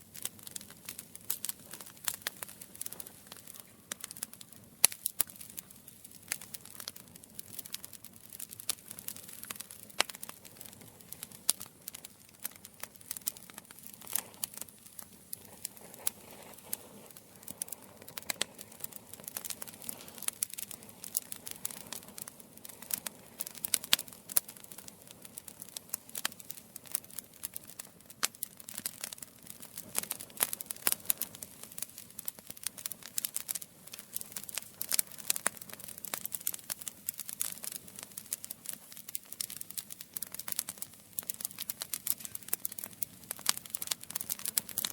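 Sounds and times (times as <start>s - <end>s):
campfire crackling: 0.0s - 44.9s.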